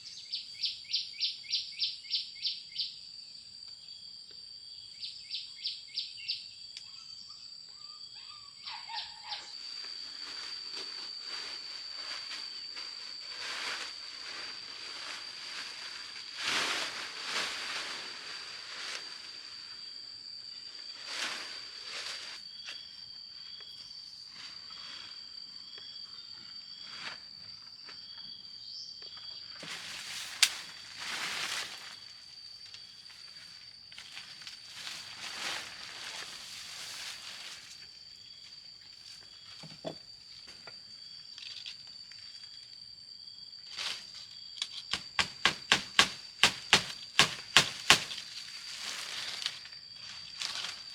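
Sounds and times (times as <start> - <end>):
bird chirps: 0.0 - 2.9
insect trilling: 4.9 - 11.5, 28.1 - 50.9
rustling and scraping: 20.9 - 22.8, 34.0 - 38.0, 43.7 - 50.9.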